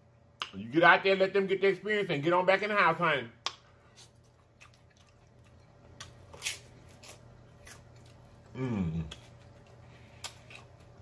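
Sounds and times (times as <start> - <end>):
man chewing crunchy food: 3.9 - 11.0
man humming: 8.5 - 9.3.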